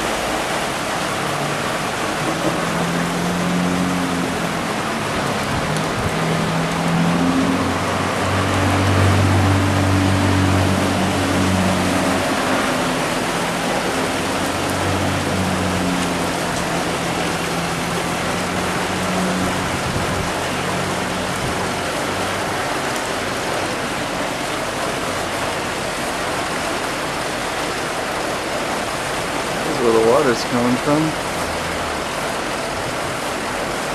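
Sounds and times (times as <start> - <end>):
vehicle engine droning: 0.0 - 25.6
heavy rain: 0.0 - 33.9
running floodwater: 0.0 - 33.9.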